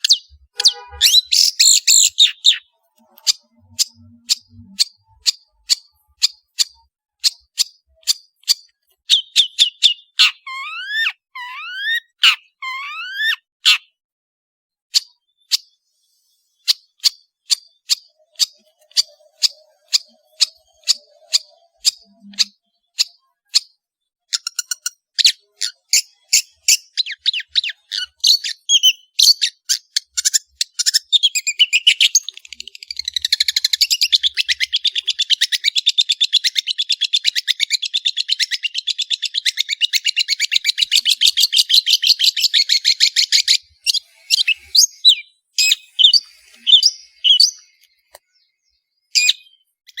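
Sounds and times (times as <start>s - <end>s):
shrike singing: 0.0s - 6.6s, 40.8s - 47.8s.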